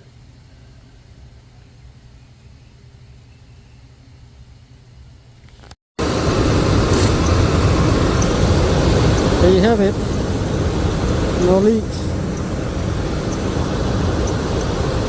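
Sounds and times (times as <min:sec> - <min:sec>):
loud engine running: 0:06.0 - 0:15.0.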